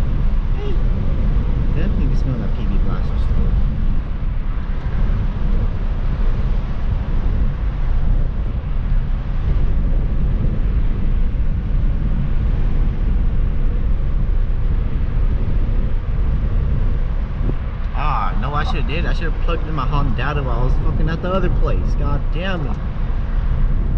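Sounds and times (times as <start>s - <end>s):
car engine and road noise: 0.0s - 23.9s.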